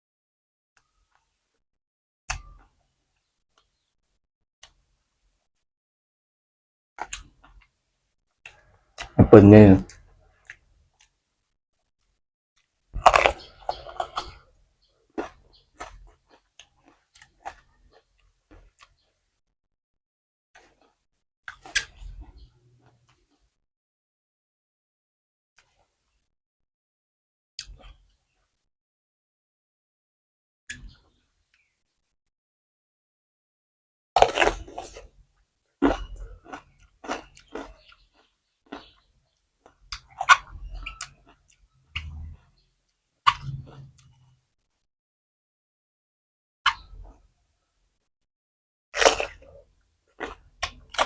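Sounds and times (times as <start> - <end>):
loud bite: 13.0 - 14.4, 34.2 - 35.0, 49.0 - 49.4
chewing and crunching mouth sounds: 13.0 - 19.1, 34.2 - 42.5, 49.0 - 51.0.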